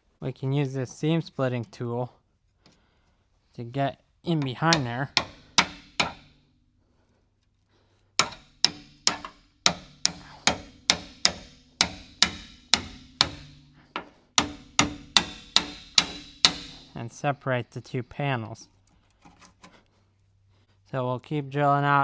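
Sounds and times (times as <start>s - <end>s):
hammer striking chisel on steel: 4.4s - 6.4s, 8.2s - 17.0s.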